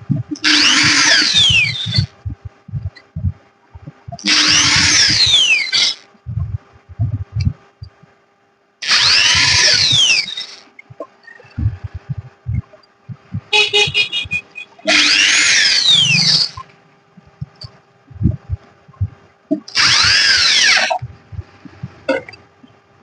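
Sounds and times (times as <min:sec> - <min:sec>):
low thuds: 0:00.0 - 0:05.5, 0:06.2 - 0:08.2, 0:10.8 - 0:14.5, 0:17.2 - 0:19.6, 0:21.0 - 0:22.4
electronic swooshing bursts: 0:00.0 - 0:08.0, 0:08.8 - 0:16.7
faint steady hum: 0:00.0 - 0:23.0.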